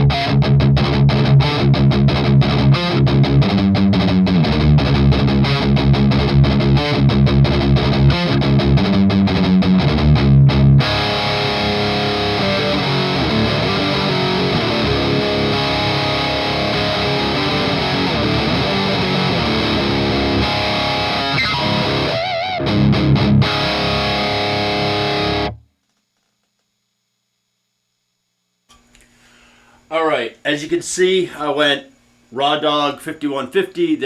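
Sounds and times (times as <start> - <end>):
distorted electric guitar: 0.0 - 25.7.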